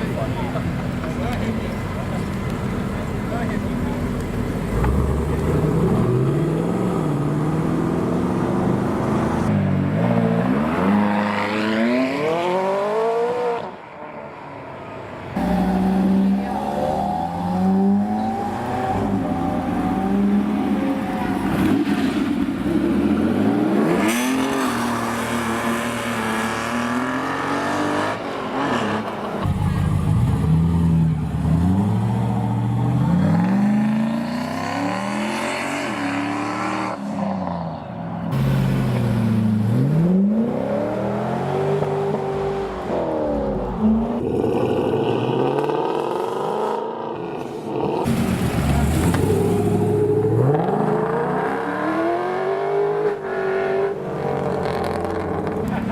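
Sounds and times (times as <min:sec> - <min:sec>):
supercar engines revving: 0:15.4 - 0:55.9.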